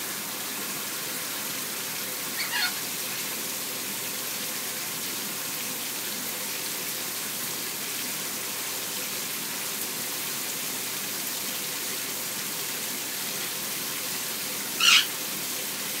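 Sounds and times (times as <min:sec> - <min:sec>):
shower water running: 0:00.0 - 0:16.0
parrot screeching: 0:02.4 - 0:02.8, 0:14.8 - 0:15.2.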